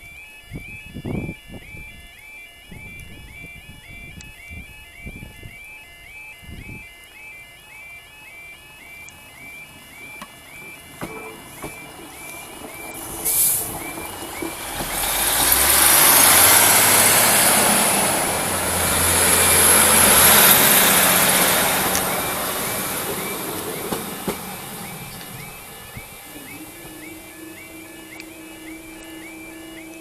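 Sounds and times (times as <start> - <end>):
train rumbling past: 9.7 - 30.0
faint high whine rising: 10.5 - 30.0.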